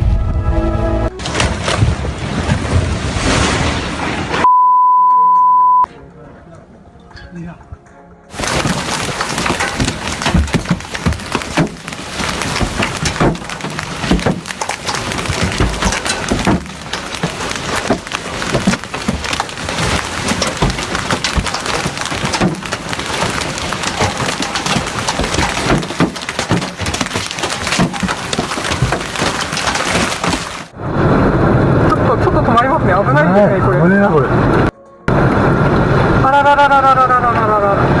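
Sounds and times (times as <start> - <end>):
sharp cracks and knocks: 8.3 - 30.8
storm wind and rain hiss: 30.2 - 38.0.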